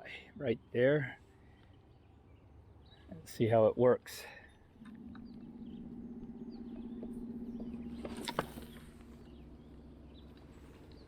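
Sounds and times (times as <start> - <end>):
birds chirping faintly: 0.0 - 11.0.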